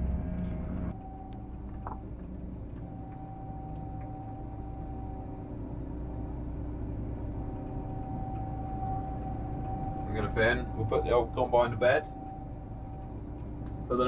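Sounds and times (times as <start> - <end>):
combine harvester engine drone: 0.0 - 14.0
thin steady whine: 0.0 - 14.0.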